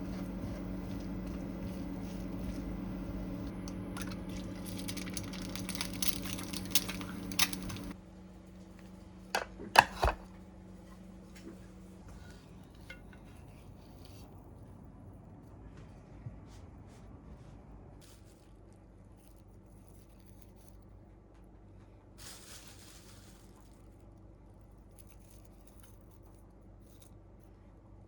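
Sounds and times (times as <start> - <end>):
appliance hum: 0.0 - 18.6.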